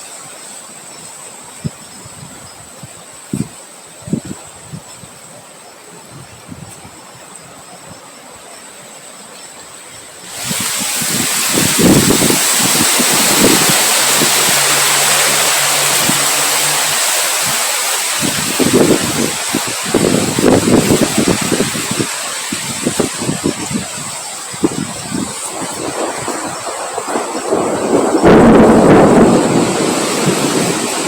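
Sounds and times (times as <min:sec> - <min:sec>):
rain hiss: 0:00.0 - 0:31.0
wind gusting: 0:10.2 - 0:31.0
thin high whine: 0:10.3 - 0:27.2.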